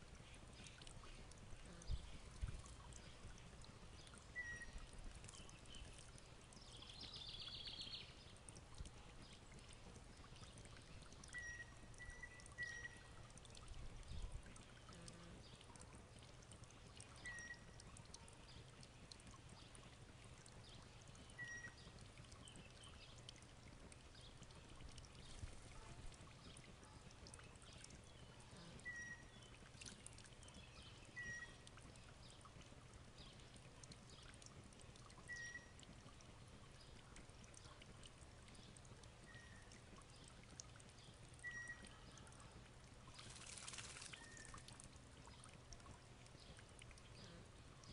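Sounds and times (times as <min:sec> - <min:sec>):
faint steady hiss: 0:00.0 - 0:47.9
bird chirping: 0:04.0 - 0:06.0, 0:06.6 - 0:08.2, 0:11.2 - 0:13.1, 0:17.2 - 0:17.7, 0:21.2 - 0:23.2, 0:27.7 - 0:29.6, 0:30.4 - 0:31.6, 0:35.3 - 0:35.8, 0:41.4 - 0:41.9, 0:43.3 - 0:44.7
bird trill: 0:04.4 - 0:04.8, 0:41.4 - 0:41.9.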